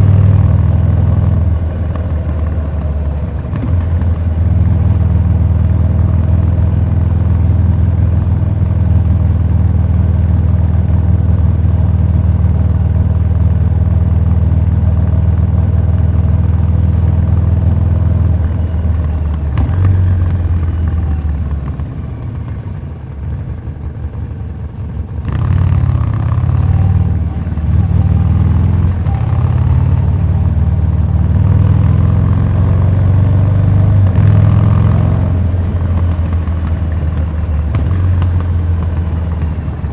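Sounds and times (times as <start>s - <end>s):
motorcycle engine revving: 0.0s - 23.4s, 24.7s - 39.9s.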